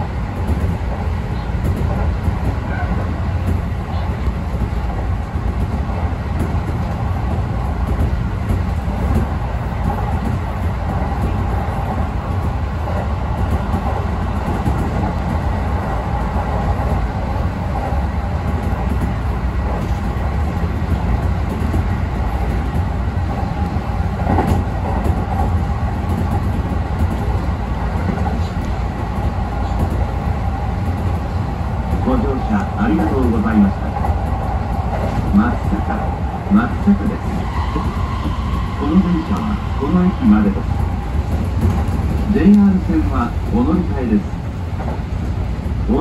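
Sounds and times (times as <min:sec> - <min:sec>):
train wheels rumbling: 0:00.0 - 0:46.0.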